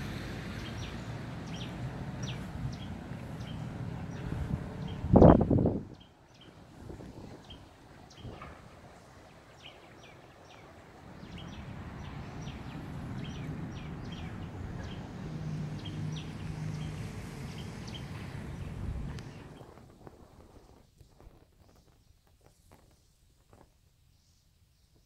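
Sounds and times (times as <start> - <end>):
birds chirping: 0.3 - 19.8.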